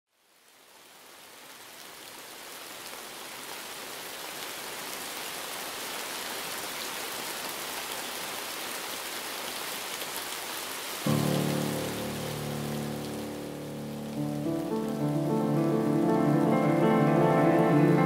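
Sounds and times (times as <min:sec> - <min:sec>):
steady rain falling: 0:00.1 - 0:18.0
raindrops ticking: 0:11.1 - 0:18.0.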